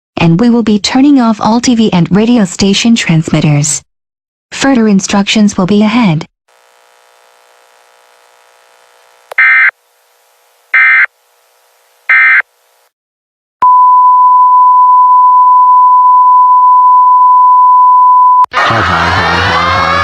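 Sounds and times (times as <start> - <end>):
short digital data bursts: 9.4 - 9.8, 10.7 - 11.1, 12.1 - 12.5
steady single-pitch tone: 13.6 - 18.5.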